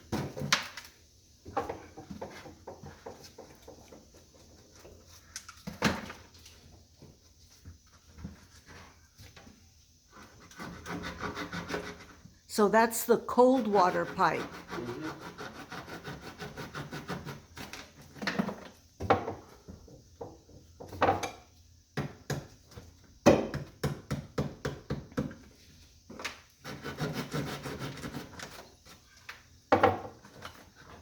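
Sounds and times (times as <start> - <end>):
hand tool rasping: 14.4 - 17.4.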